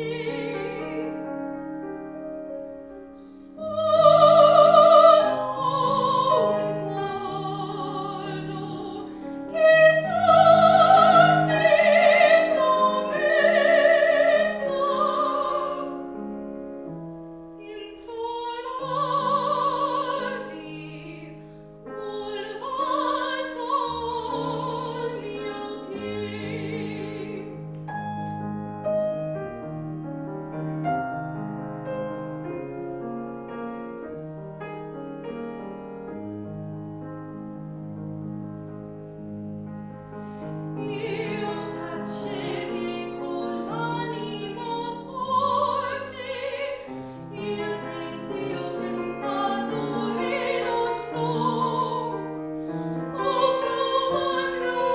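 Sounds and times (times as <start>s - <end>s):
piano: 0.0s - 54.9s
operatic singing: 3.2s - 16.1s, 17.6s - 21.4s, 22.0s - 27.7s, 40.8s - 54.9s.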